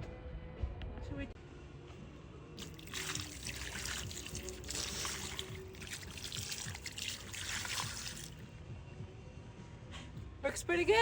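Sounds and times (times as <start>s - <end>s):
water trickling and splashing: 2.6s - 8.4s.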